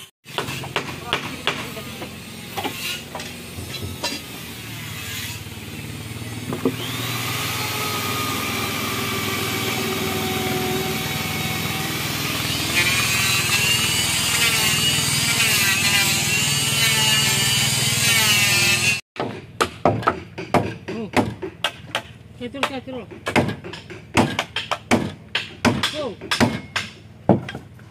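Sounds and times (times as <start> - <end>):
motor running: 1.5 - 15.3
sharp knocks: 19.2 - 27.7.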